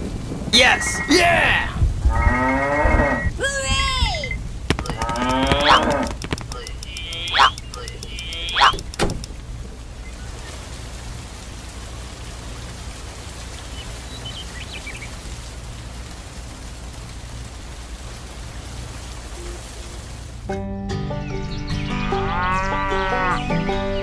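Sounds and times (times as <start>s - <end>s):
steady rain falling: 0.0s - 20.6s
cow mooing: 5.0s - 6.2s, 22.3s - 23.4s.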